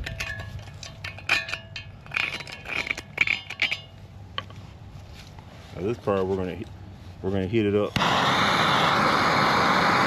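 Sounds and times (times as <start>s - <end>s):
metal scraping: 0.0s - 4.0s
low steady hum: 0.0s - 10.0s.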